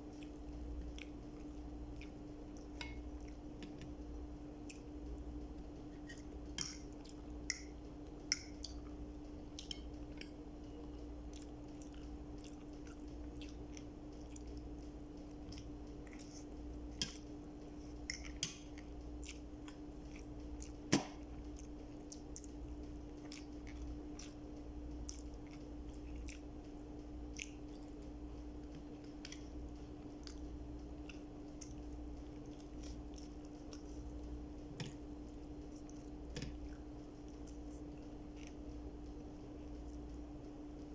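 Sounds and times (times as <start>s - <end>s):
person chewing food: 0.0s - 40.9s.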